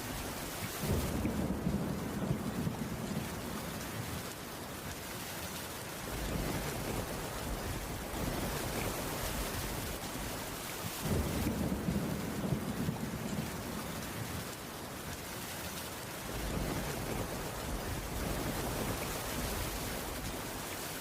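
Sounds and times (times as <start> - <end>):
low rumble of thunder: 0.0 - 4.4, 6.0 - 15.1, 16.2 - 20.7
heavy rain on a wooden roof: 0.0 - 21.0.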